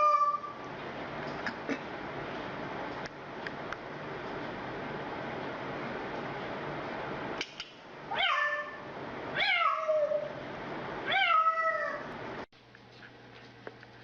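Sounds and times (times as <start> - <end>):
cat meowing: 0.0 - 0.6, 8.1 - 8.8, 9.4 - 10.3, 11.1 - 12.1.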